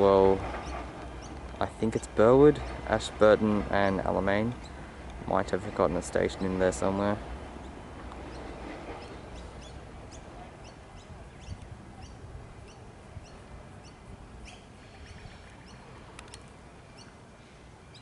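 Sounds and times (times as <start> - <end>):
small bird chirping: 7.6 - 17.2.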